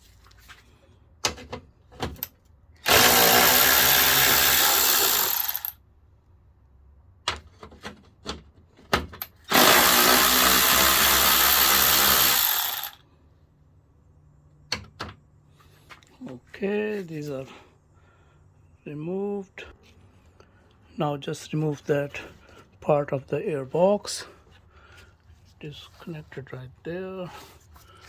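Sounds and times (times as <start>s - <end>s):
power tool running: 2.8s - 5.8s, 9.5s - 13.0s.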